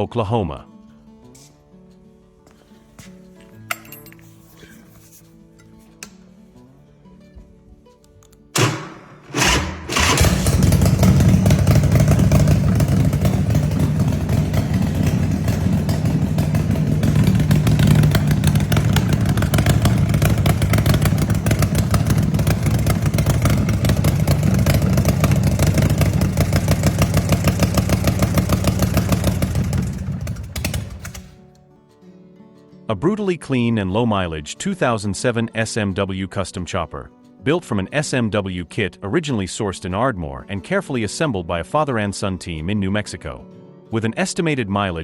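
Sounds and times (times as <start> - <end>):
motorcycle engine starting and running: 8.6 - 31.4.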